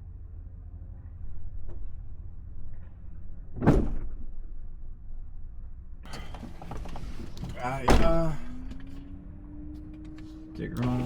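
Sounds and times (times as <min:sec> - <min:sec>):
truck door slamming: 0:03.6 - 0:04.2, 0:06.2 - 0:08.9.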